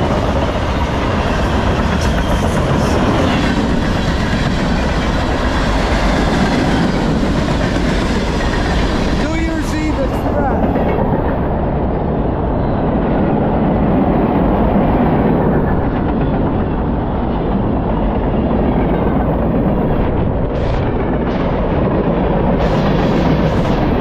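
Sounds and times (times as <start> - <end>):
clickety-clack of wheels: 0.0 - 9.0
freight train wheels on rails: 0.0 - 24.0.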